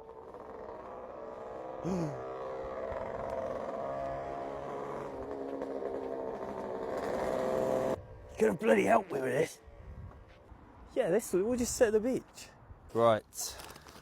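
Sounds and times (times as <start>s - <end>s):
vehicle engine humming: 0.0s - 10.8s.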